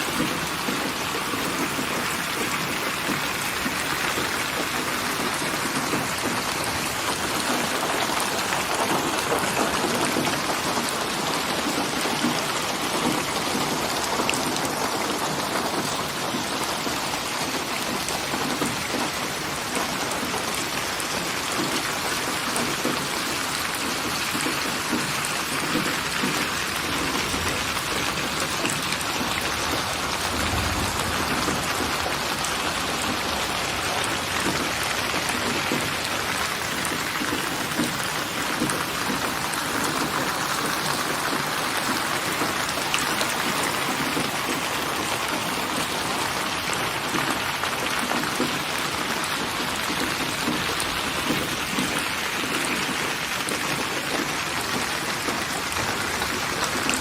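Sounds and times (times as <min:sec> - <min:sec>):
steady rain falling: 0:00.0 - 0:57.0
low rumble: 0:29.9 - 0:32.7.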